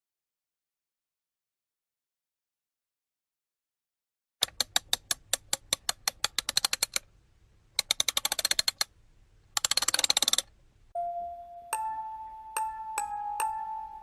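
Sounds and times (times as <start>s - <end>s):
keyboard typing: 4.4s - 7.0s, 7.8s - 8.9s, 9.6s - 10.5s
held bell-like note: 11.0s - 14.0s.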